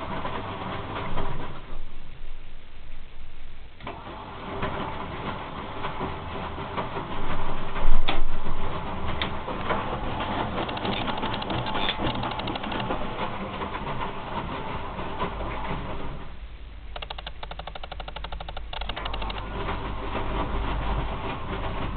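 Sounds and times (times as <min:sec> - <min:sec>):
washing machine clattering: 0:03.9 - 0:16.3, 0:17.0 - 0:21.9
fast run of ticks: 0:10.4 - 0:13.0, 0:16.9 - 0:19.5
sharp clicks: 0:10.6 - 0:13.0, 0:16.9 - 0:19.5.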